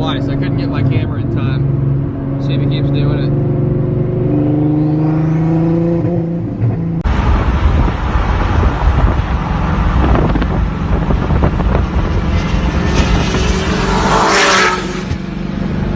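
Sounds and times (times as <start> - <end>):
car engine droning: 0.0 - 15.9
wind and road noise: 0.0 - 15.9.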